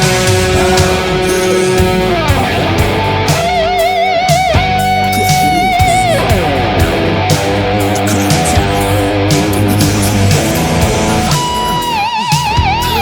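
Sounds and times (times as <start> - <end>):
bass guitar: 0.0 - 13.0
drums: 0.0 - 13.0
lead electric guitar with vibrato: 0.0 - 13.0.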